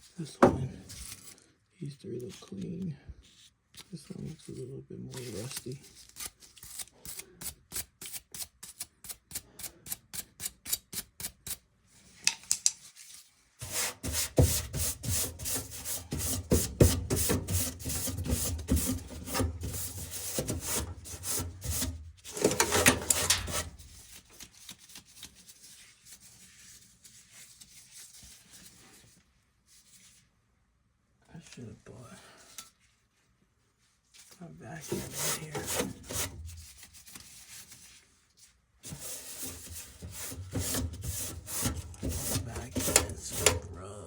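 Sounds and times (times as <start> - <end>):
brush scrubbing metal: 13.6 - 24.1, 34.8 - 37.7, 38.8 - 43.8.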